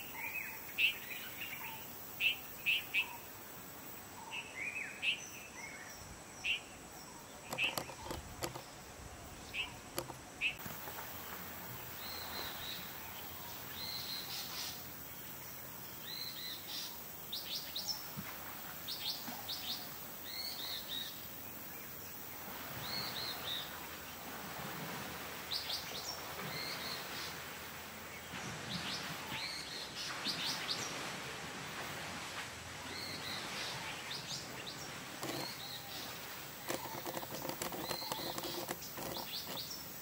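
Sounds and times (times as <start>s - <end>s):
outdoor background hiss: 0.0s - 40.0s
wild birds chirping: 4.2s - 18.0s, 33.0s - 40.0s.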